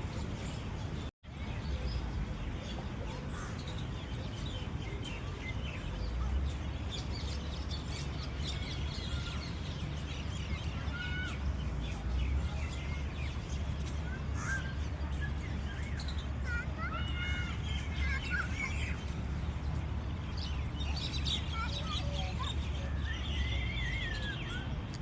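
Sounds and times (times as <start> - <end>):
birds chirping: 0.0 - 25.0
steady low rumble: 0.0 - 25.0.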